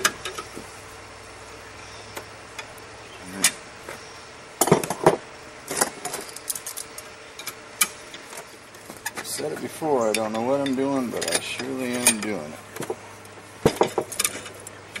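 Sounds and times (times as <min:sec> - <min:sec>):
hand tools clinking on steel: 0:09.0 - 0:13.0, 0:13.6 - 0:15.0.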